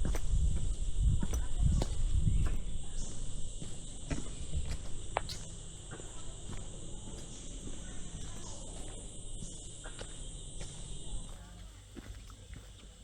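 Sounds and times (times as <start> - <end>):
footsteps on trail: 0.0 - 13.0
insect chorus high-pitched drones: 0.0 - 13.0.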